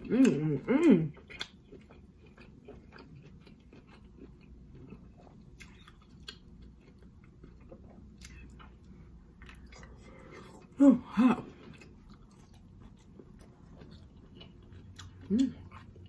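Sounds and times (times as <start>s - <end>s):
faint chewing: 0.0s - 10.8s, 11.4s - 16.0s.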